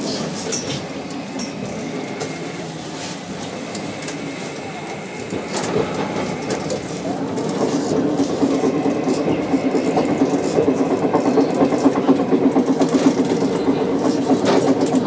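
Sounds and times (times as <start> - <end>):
streetcar wheels rumbling: 0.0 - 15.0.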